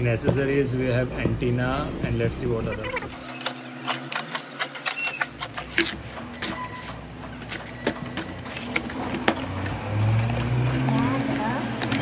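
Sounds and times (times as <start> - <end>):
high squeak: 2.6 - 3.7, 4.8 - 5.6, 6.2 - 7.0
packaging being handled: 3.2 - 12.0.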